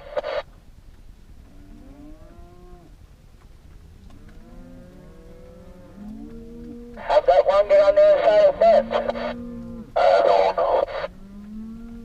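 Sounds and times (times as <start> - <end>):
cattle mooing: 4.1 - 12.0.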